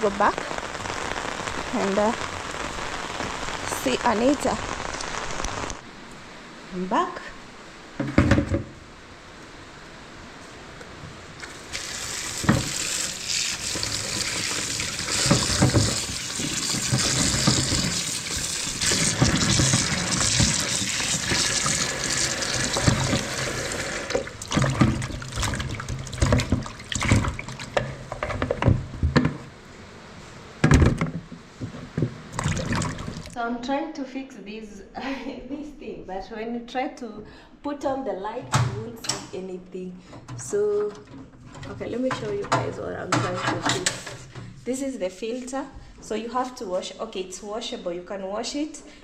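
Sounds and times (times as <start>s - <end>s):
water splashing: 11.4s - 28.8s, 32.3s - 33.4s
tap running into sink: 11.8s - 29.4s.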